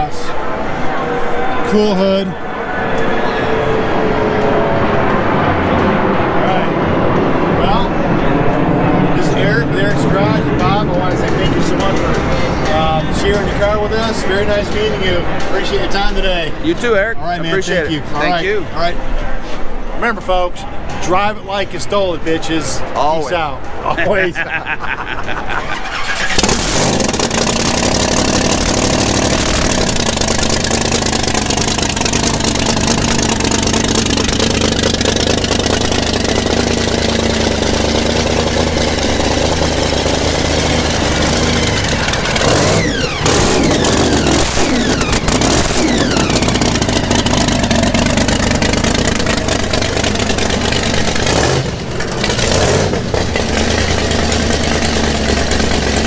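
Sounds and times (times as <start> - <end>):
racing car engine revving: 25.1 - 56.0.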